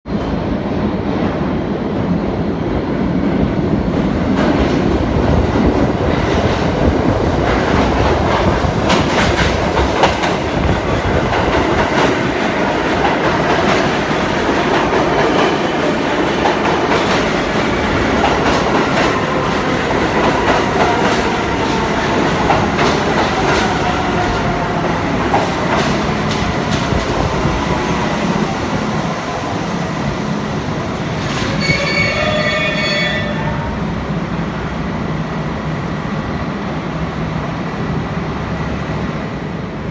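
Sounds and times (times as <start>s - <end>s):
subway train wheels clattering: 0.1s - 39.9s.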